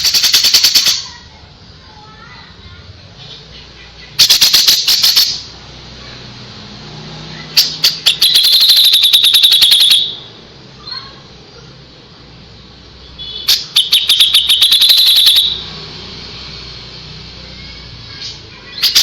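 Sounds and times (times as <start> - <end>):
songbird rattling trill: 0.0 - 1.1, 4.2 - 5.5, 7.6 - 10.3, 13.4 - 15.7, 18.7 - 19.0.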